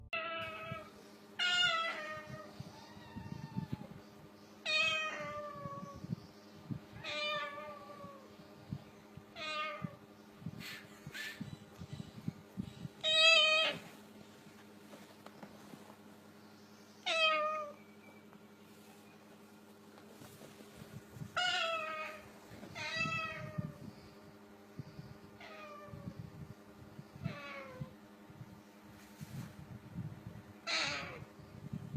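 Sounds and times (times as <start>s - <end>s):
parrot imitating cat meow: 0.2s - 3.9s, 13.0s - 13.8s, 30.6s - 31.3s
cat-like meows: 30.6s - 31.3s.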